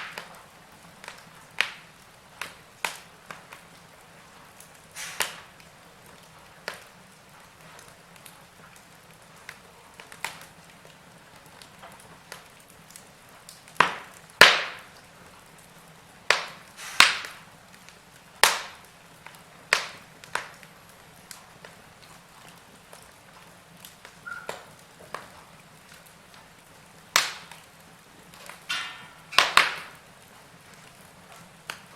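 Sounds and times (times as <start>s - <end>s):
faint steady hiss: 0.0s - 31.9s
wood fire crackling: 0.0s - 31.9s.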